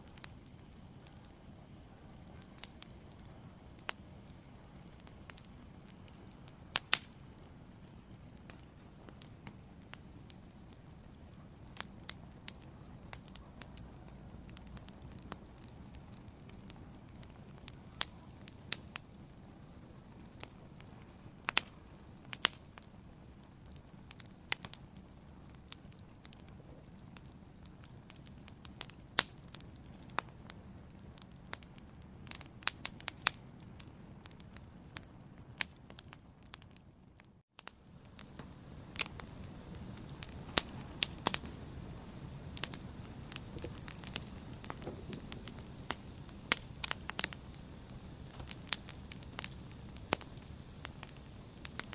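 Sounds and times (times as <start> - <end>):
low rumble of flames: 0.0 - 51.9
wood fire crackling and popping: 0.0 - 51.9.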